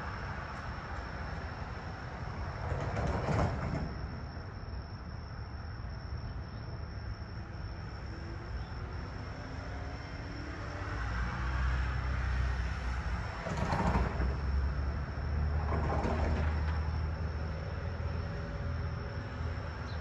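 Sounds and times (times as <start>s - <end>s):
train rumbling: 0.0s - 4.6s, 12.4s - 19.8s.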